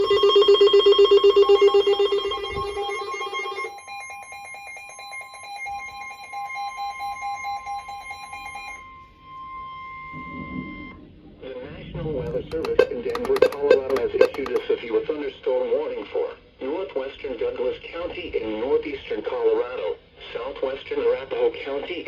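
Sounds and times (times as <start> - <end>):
lower pulsing tone: 0.0 - 3.7, 8.8 - 14.6
pulsing electronic alarm beeping: 0.0 - 11.2, 12.3 - 14.6
steady alarm tone: 0.0 - 11.4, 12.3 - 14.6.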